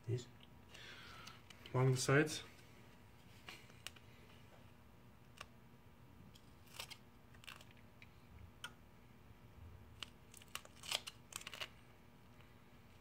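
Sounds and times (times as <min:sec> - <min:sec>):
adhesive tape crackling: 0:06.3 - 0:07.8, 0:09.9 - 0:11.8.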